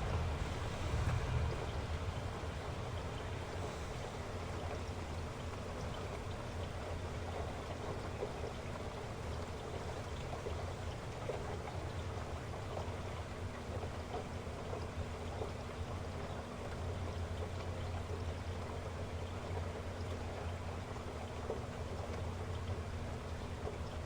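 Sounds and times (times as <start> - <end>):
heavy rain falling: 0.0 - 5.8
low steady rumble: 0.0 - 24.0.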